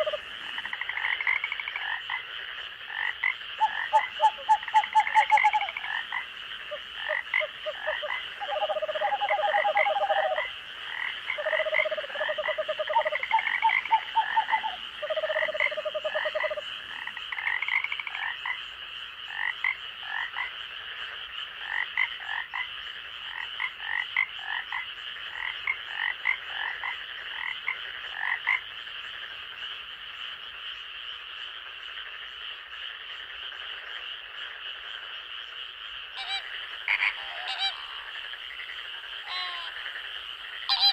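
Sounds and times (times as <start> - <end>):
frog pulsing trills: 0.0 - 2.2, 2.9 - 18.6
frogs calling in chorus: 0.0 - 40.9.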